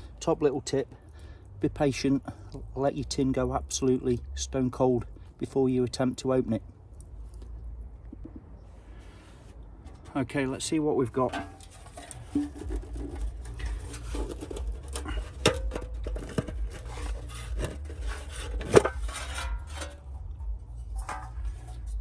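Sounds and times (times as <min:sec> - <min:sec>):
metal tin clicks and scrapes: 0:09.8 - 0:22.0.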